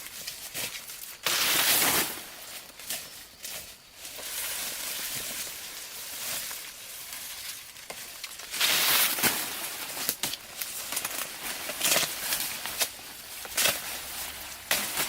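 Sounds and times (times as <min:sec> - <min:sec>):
plant leaves rustling: 0:00.0 - 0:15.0
stalks snapping: 0:10.0 - 0:15.0.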